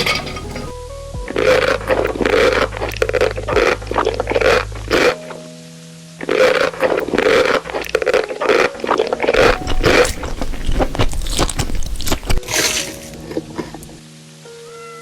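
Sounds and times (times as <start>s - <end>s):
people chewing noodles: 1.3s - 5.3s, 6.3s - 14.0s.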